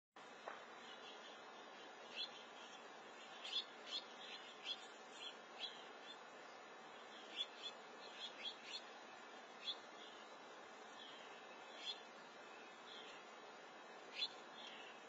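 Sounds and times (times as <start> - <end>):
faint steady hiss: 0.2 - 15.0
small birds chirping: 0.7 - 15.0.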